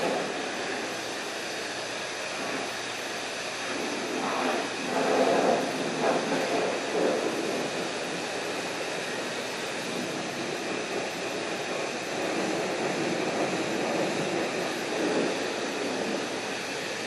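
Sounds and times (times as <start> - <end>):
high-pressure water spray hissing: 0.0 - 17.0.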